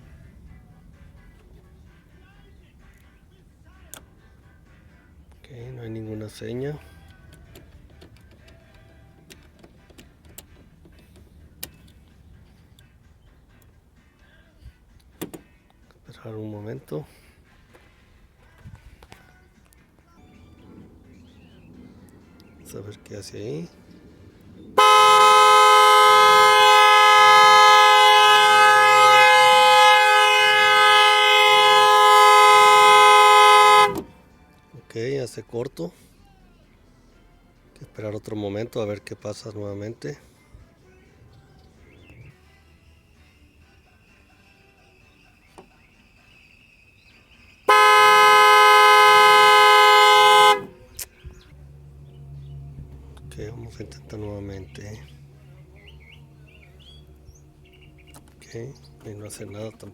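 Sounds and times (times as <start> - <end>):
car horn blaring: 24.8 - 34.2, 47.7 - 51.0, 51.6 - 59.9.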